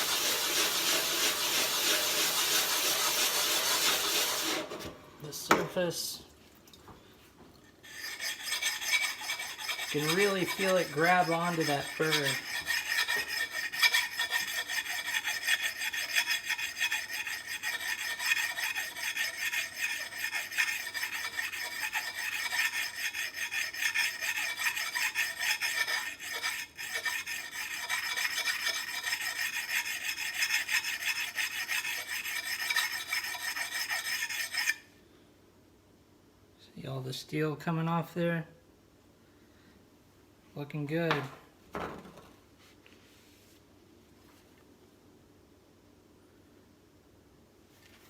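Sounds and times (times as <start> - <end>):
sharpening stone scraping steel: 7.8 - 34.9.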